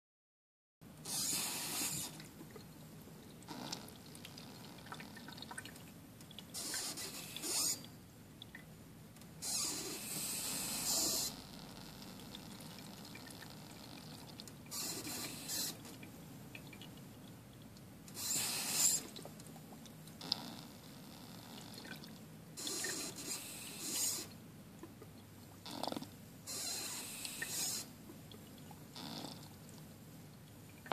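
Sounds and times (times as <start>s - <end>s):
toy toilet flushing: 1.0s - 2.4s, 6.5s - 7.9s, 9.4s - 11.4s, 14.7s - 15.9s, 18.1s - 19.2s, 22.6s - 24.3s, 26.5s - 27.9s.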